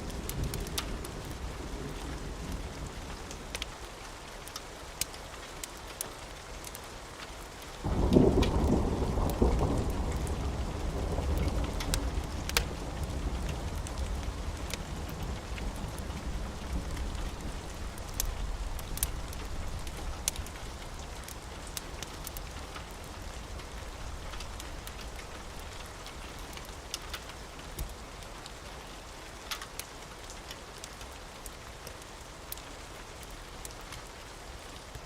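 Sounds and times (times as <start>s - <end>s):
steady rain: 0.0s - 35.0s
wood fire crackling: 0.0s - 35.0s
thunder rumbling: 7.8s - 25.8s.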